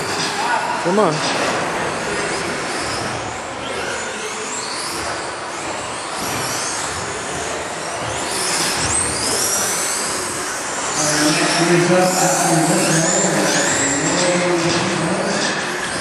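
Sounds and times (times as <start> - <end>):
toy truck motors whining: 1.9 - 14.2.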